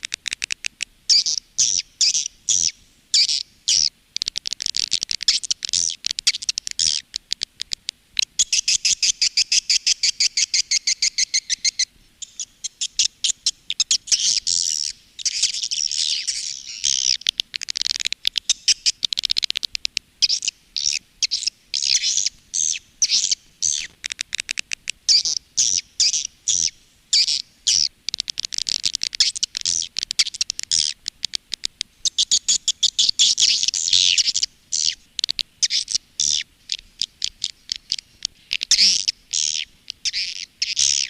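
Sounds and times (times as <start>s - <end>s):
high twittering bird chirps: 0.4s - 3.9s, 8.4s - 19.2s, 20.2s - 23.9s, 32.0s - 38.0s.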